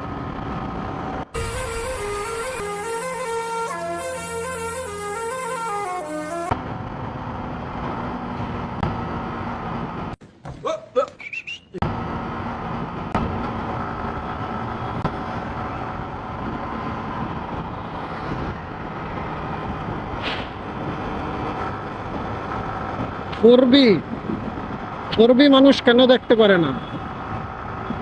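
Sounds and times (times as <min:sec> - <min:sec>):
road traffic and engines: 0:00.0 - 0:28.0
short pitched tones: 0:01.4 - 0:06.5.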